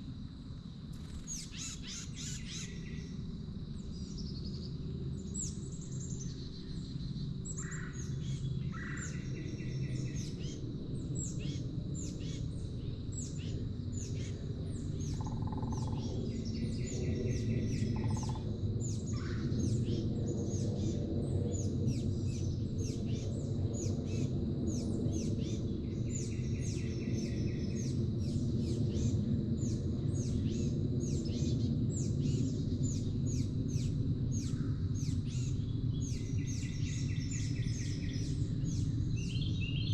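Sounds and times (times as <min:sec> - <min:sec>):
buzzy bird trill: 0:01.0 - 0:02.8.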